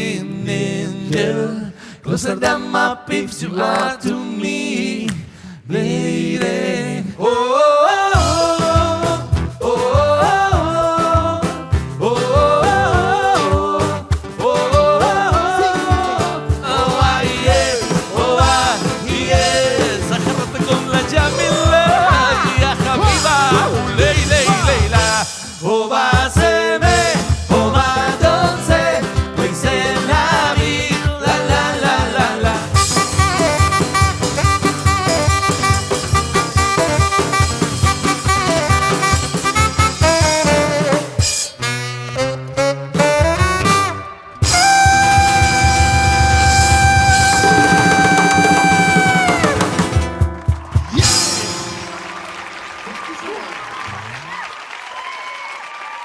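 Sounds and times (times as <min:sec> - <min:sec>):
live band playing: 0:08.2 - 0:25.7, 0:26.4 - 0:53.4
drum beat: 0:08.2 - 0:41.6, 0:43.0 - 0:52.4
melodic lead line: 0:32.8 - 0:40.7.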